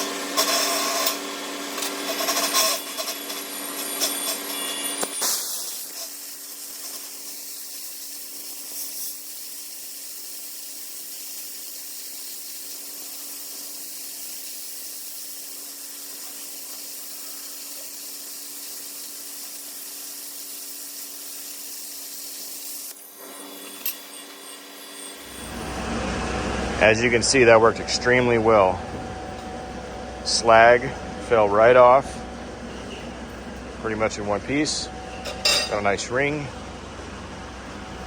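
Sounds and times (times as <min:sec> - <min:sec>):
plasma cutter arc hissing: 0:00.0 - 0:25.9
steady hum: 0:25.2 - 0:38.0.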